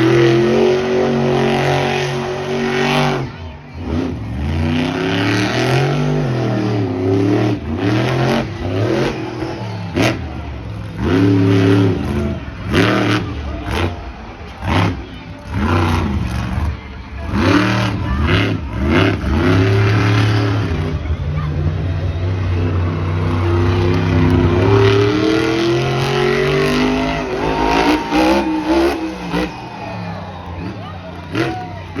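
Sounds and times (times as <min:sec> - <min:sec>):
truck engine revving hard: 0:00.0 - 0:32.0.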